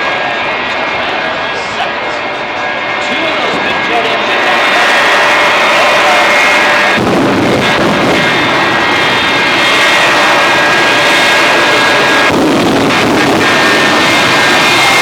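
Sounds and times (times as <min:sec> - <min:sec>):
high turbine whine: 0:00.0 - 0:15.0
jet engines roaring: 0:00.0 - 0:15.0.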